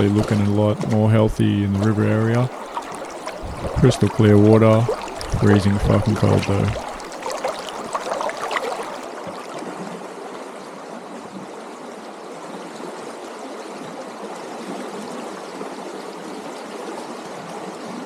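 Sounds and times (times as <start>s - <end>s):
river flowing: 0.0s - 9.2s.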